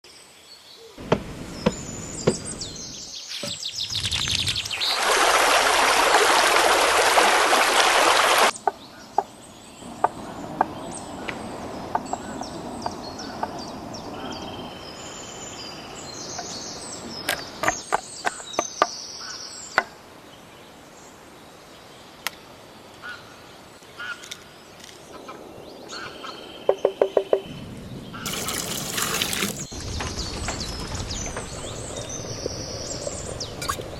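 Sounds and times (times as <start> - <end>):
birds chirping: 0.5 - 5.2, 8.1 - 33.9.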